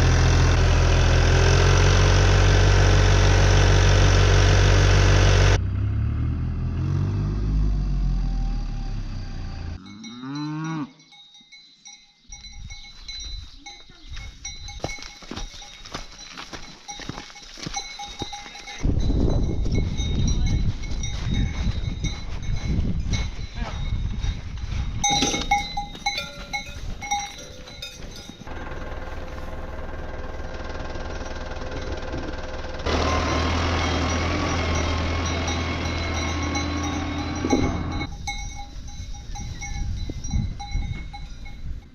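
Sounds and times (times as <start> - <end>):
engine running: 0.0 - 9.8, 25.0 - 39.2
cow mooing: 9.7 - 11.0
cowbell ringing: 9.8 - 28.6, 32.9 - 41.9
bell-like clinks and knocks: 14.4 - 24.4, 25.0 - 28.5, 33.2 - 41.9.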